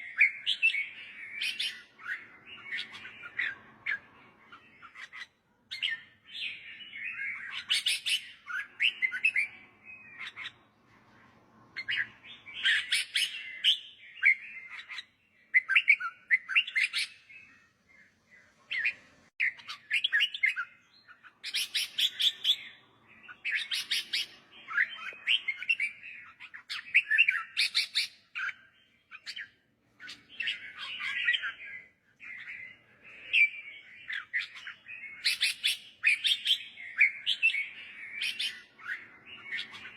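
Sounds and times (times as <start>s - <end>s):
bird warbling song: 0.0s - 39.9s.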